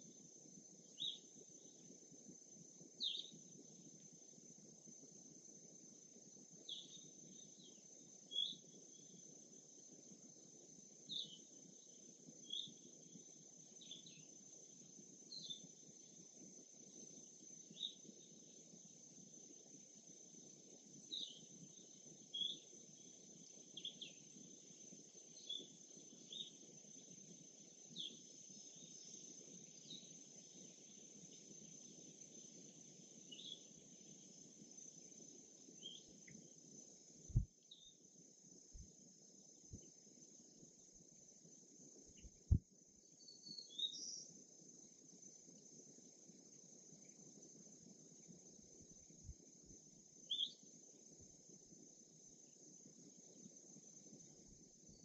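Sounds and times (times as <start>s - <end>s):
high insect drone: 0.0s - 55.0s
bird chirps: 43.2s - 44.3s, 50.3s - 50.6s.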